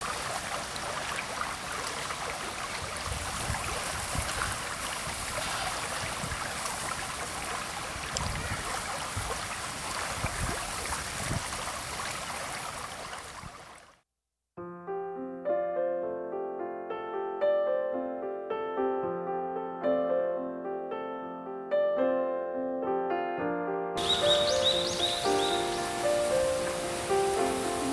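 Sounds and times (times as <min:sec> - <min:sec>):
creek water rushing: 0:00.0 - 0:13.9, 0:24.0 - 0:27.9
gentle piano music: 0:14.6 - 0:27.9.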